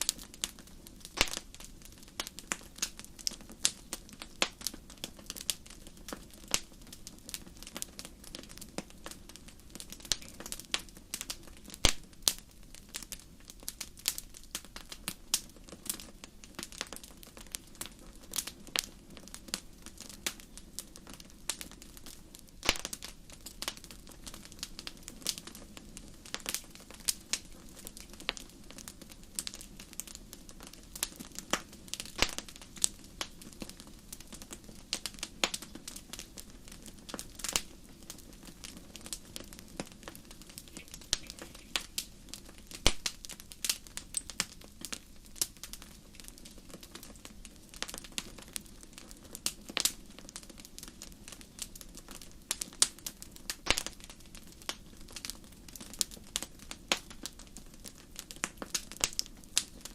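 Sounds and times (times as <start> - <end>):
wood fire crackling and popping: 0.0 - 59.9
fire hissing: 17.6 - 48.8.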